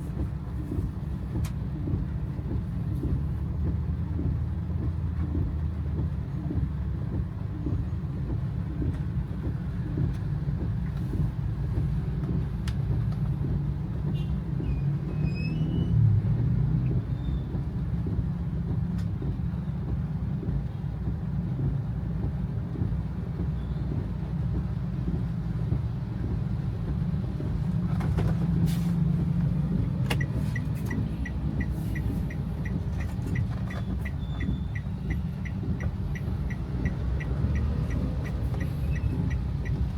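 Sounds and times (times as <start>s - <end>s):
car engine and tyres on wet road: 0.0s - 39.9s
regular light ticking: 28.5s - 39.9s.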